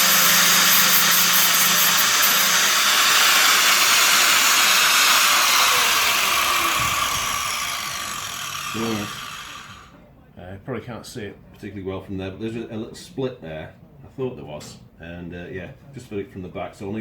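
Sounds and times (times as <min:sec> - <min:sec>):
angle grinder grinding steel: 0:00.0 - 0:09.9.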